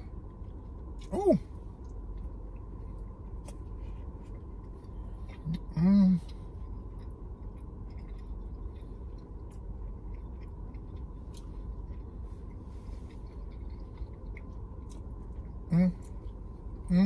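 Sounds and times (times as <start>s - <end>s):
person chewing: 0.1s - 17.0s.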